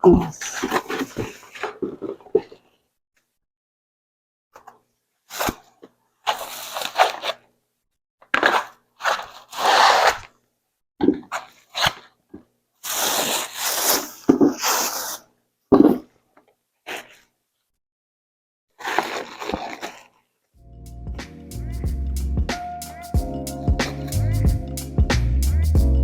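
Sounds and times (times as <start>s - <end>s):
packaging rustling: 18.8s - 20.2s.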